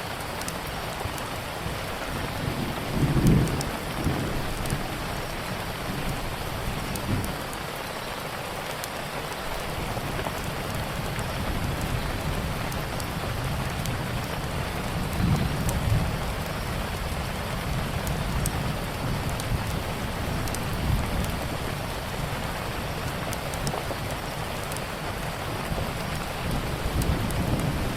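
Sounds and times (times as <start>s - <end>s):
rain falling: 0.0s - 27.9s
low rumble of thunder: 1.6s - 7.5s, 9.8s - 27.9s
wood fire crackling and popping: 17.8s - 25.3s.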